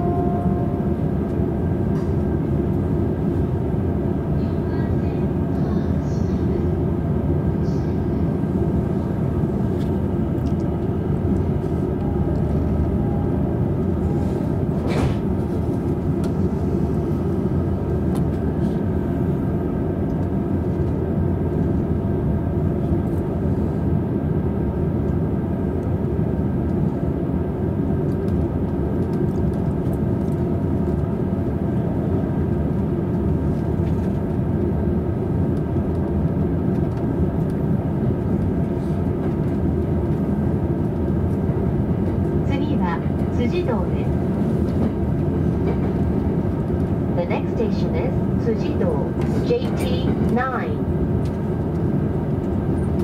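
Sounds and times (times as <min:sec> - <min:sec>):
train interior rumble and hum: 0:00.0 - 0:53.0.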